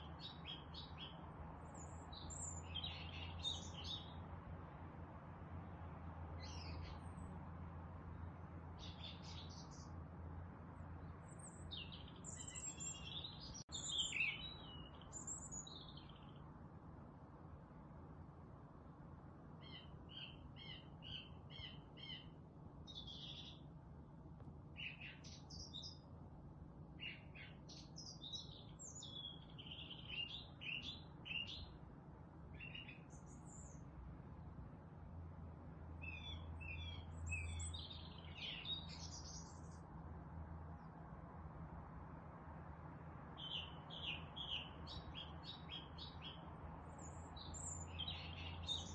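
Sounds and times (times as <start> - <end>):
songbirds chirping and singing: 0.0 - 4.3, 6.4 - 7.3, 8.2 - 10.0, 10.8 - 16.4, 19.6 - 23.8, 24.8 - 26.1, 27.0 - 31.8, 32.6 - 33.8, 35.9 - 39.8, 43.4 - 48.9.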